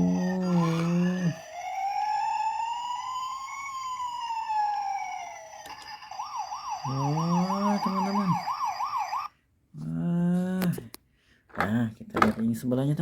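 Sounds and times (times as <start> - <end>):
toy siren wailing: 0.0 - 9.3.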